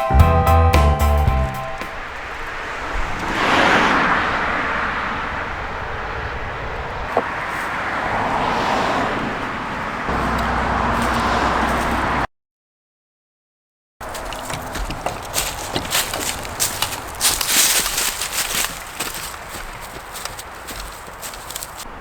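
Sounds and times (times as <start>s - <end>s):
road vehicle noise: 0.0s - 12.3s, 14.0s - 22.0s.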